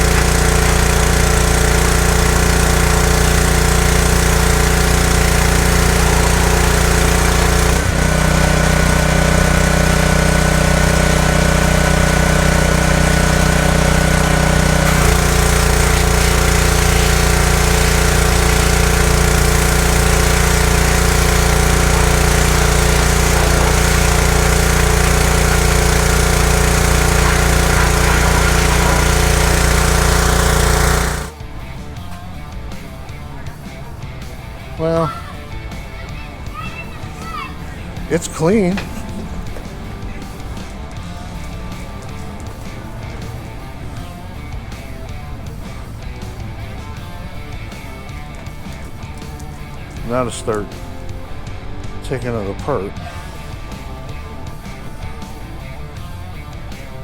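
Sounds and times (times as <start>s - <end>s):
machine humming and hissing: 0.0s - 31.4s.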